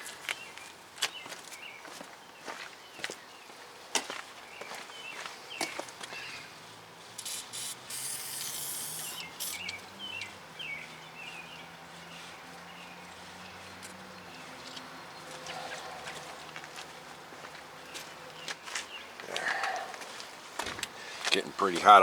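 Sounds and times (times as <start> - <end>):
small birds chirping: 4.4 - 22.0
loud hissing spray: 7.2 - 9.7.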